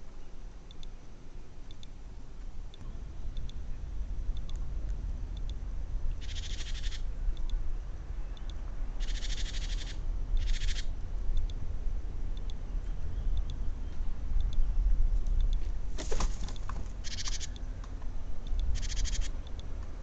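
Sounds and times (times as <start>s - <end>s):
steady low rumble: 0.0s - 20.0s
bird high rattling call: 6.2s - 7.1s, 9.0s - 10.9s, 17.0s - 17.6s, 18.7s - 19.3s.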